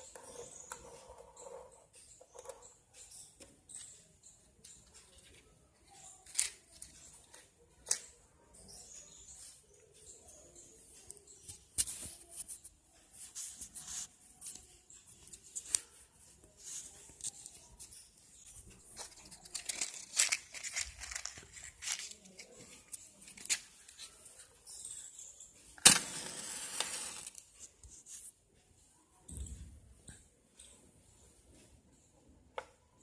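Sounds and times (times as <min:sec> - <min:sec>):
plastic cup crinkling and clicking: 0:18.8 - 0:24.1.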